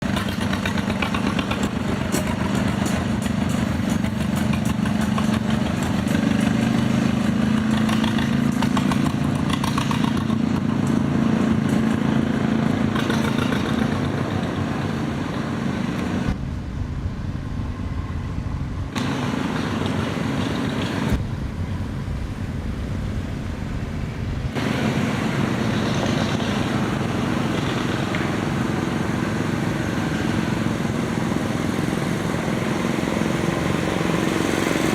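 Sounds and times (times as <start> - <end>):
engine running: 0.0 - 34.9
low rumble: 16.2 - 19.0, 21.1 - 24.7.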